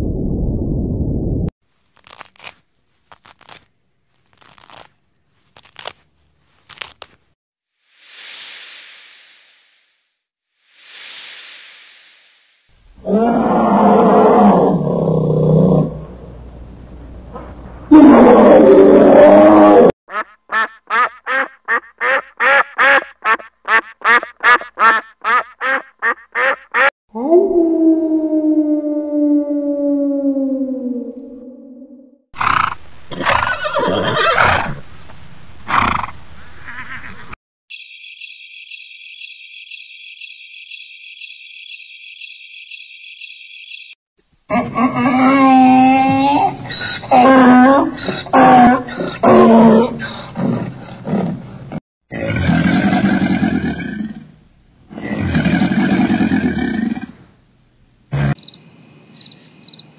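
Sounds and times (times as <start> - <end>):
low rumble: 0.0 - 1.5
loud animal growl: 13.0 - 16.2, 17.9 - 19.9, 47.1 - 54.3, 54.9 - 57.2
ducks quacking: 20.1 - 26.9, 36.6 - 37.4
wolf howling: 27.1 - 32.2.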